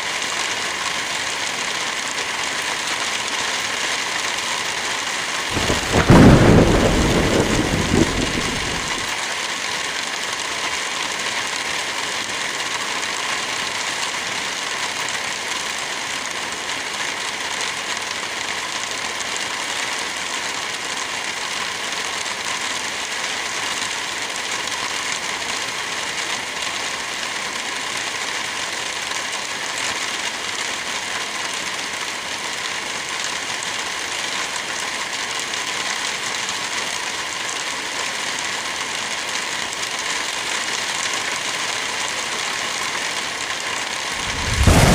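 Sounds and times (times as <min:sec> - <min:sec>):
steady rain: 0:00.0 - 0:44.9
thunderclap rumbling: 0:05.5 - 0:09.1, 0:44.2 - 0:44.9.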